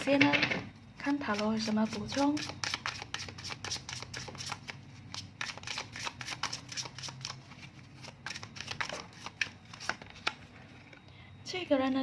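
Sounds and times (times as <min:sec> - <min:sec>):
cards being shuffled: 0:01.9 - 0:10.5.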